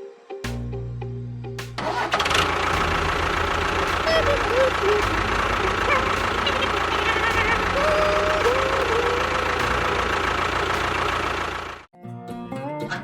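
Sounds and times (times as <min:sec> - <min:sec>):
engine idling: 0:01.8 - 0:11.9.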